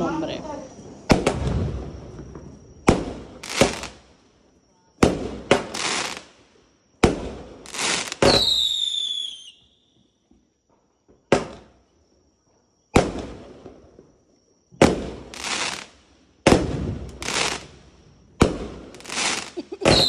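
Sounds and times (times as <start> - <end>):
firework crackling bursts: 0.8 - 4.2, 5.0 - 9.6, 14.8 - 20.0
firework launch cracks: 1.0 - 4.1, 5.0 - 9.4, 12.9 - 13.8, 14.8 - 20.0
firework whistle falling in pitch: 8.2 - 10.1.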